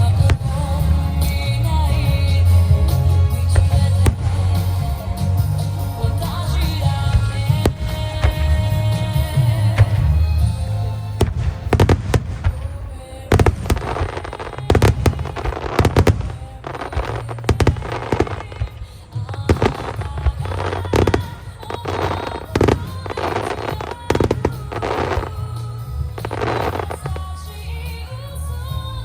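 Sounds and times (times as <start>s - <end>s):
fireworks bursting: 0.0s - 29.0s
music: 0.0s - 29.0s.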